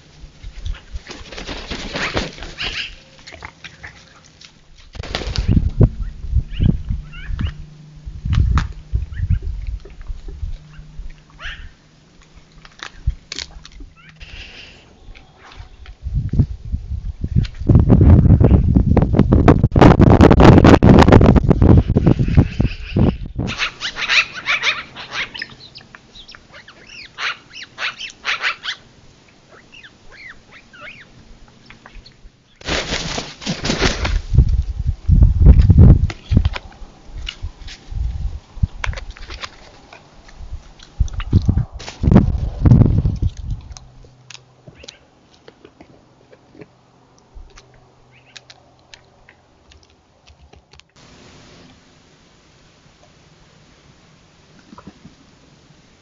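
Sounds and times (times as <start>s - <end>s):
low steady hum: 0.0s - 56.0s
animals feeding clicks and crunches: 0.4s - 5.0s, 8.3s - 16.0s, 38.7s - 42.1s, 42.9s - 51.0s, 54.5s - 55.2s
wild animals yelping: 10.6s - 11.8s.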